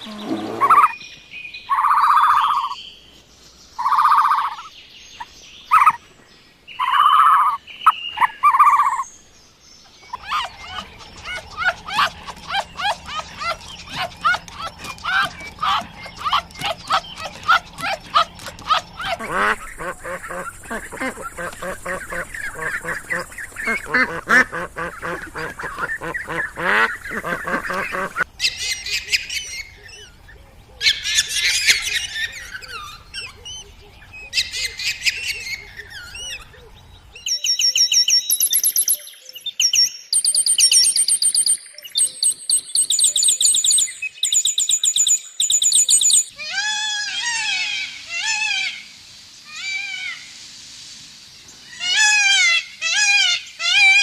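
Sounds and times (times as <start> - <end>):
rising and falling bird calls: 0.0 - 2.9, 3.7 - 6.1, 6.7 - 9.2, 9.8 - 50.3
bird chirps: 0.0 - 46.4
bird honking call: 10.1 - 28.3.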